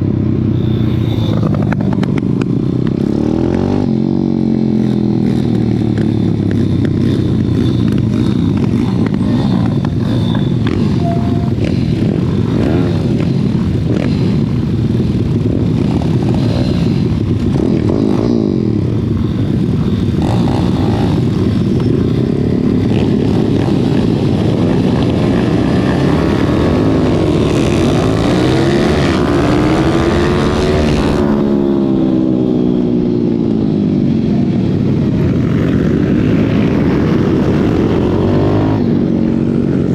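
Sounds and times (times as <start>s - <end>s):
several engine tones: 0.0s - 4.2s, 4.8s - 14.3s
rushing wind: 0.0s - 39.9s.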